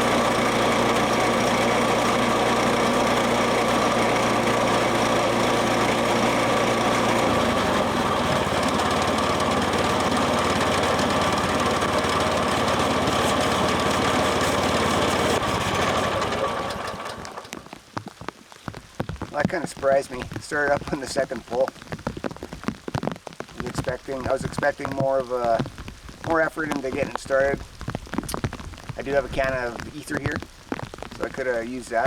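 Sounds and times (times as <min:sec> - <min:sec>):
gasoline engine running: 0:00.0 - 0:17.8.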